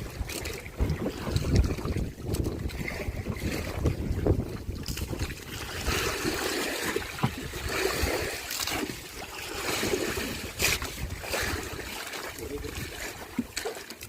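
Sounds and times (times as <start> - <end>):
water sloshing and splashing: 0.0 - 14.0.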